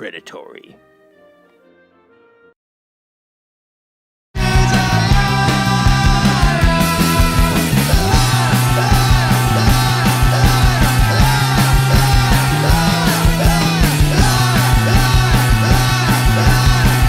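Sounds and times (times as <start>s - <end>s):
loud rock music: 4.4s - 17.0s.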